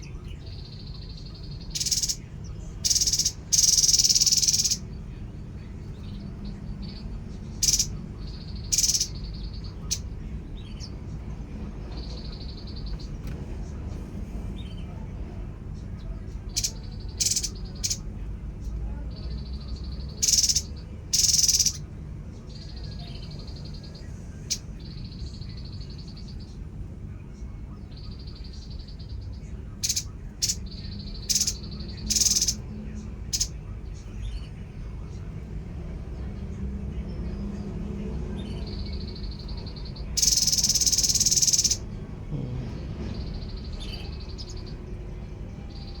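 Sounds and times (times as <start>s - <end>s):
bird high trills: 0.5s - 2.2s, 2.8s - 4.8s, 7.6s - 10.0s, 16.5s - 18.0s, 20.0s - 21.9s, 29.8s - 32.6s, 39.1s - 42.5s.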